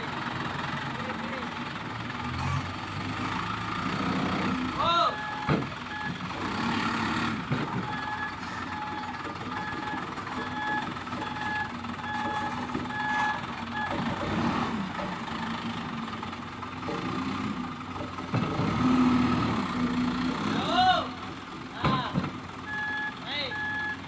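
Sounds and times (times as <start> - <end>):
truck engine running: 0.0 - 24.0
truck reversing alarm beeping: 2.2 - 14.7, 22.6 - 24.0.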